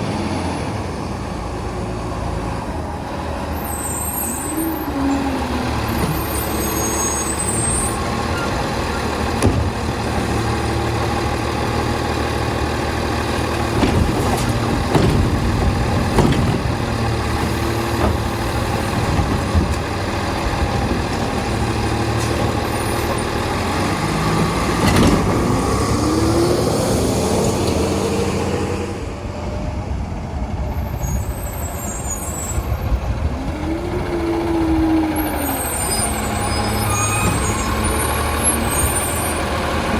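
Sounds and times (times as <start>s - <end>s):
diesel truck engine revving: 0.0s - 39.9s
knocks and clanks: 7.5s - 11.9s, 13.2s - 26.0s.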